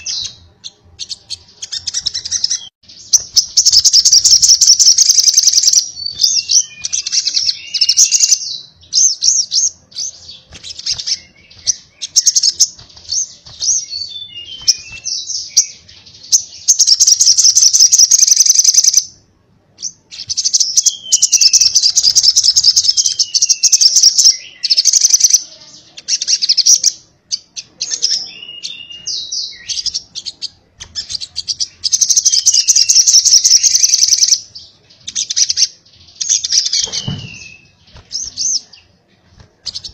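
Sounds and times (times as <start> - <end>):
downward-sliding bird whistles: 36.7 - 38.3.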